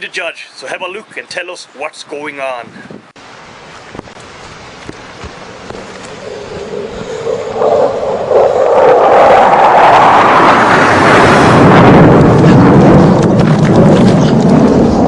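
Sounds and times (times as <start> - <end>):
jet aircraft flying over: 4.7 - 15.0.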